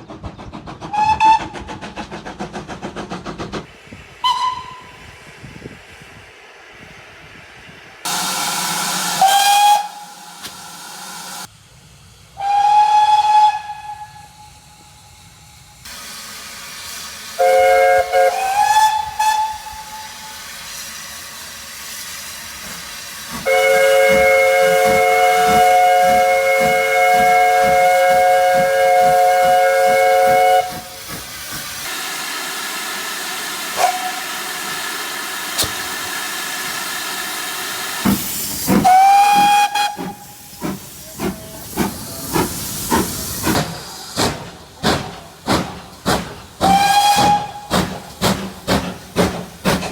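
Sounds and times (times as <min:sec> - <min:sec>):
steam engine chuffing: 0:00.0 - 0:03.9, 0:15.9 - 0:49.9
steady steam hiss: 0:00.6 - 0:49.9
short steam whistle toots: 0:04.2 - 0:05.2, 0:08.1 - 0:11.5, 0:12.4 - 0:15.0, 0:17.4 - 0:20.6, 0:23.4 - 0:31.0, 0:33.7 - 0:34.8, 0:38.7 - 0:43.1, 0:46.6 - 0:47.9.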